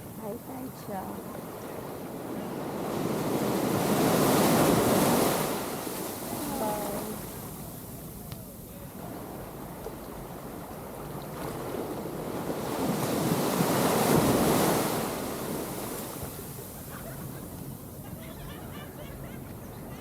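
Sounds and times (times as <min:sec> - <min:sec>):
ocean waves breaking: 0:00.0 - 0:20.0.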